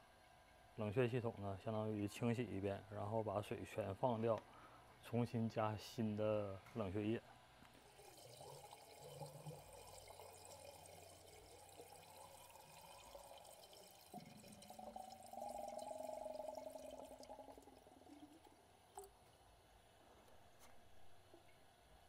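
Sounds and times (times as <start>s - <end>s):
water pouring into a tank: 7.8s - 19.3s.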